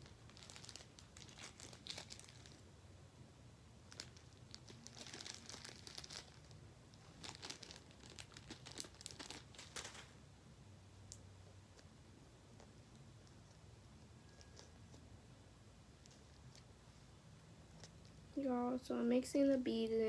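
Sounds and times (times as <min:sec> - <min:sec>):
plastic packaging crinkling: 0:00.0 - 0:02.6, 0:03.8 - 0:10.2.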